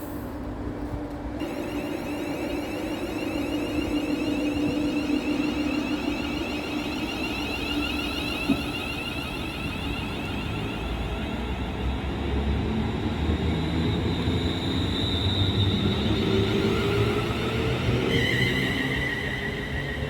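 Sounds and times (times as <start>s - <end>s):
train rumble: 0.0s - 20.0s
faint high whine: 1.4s - 20.0s.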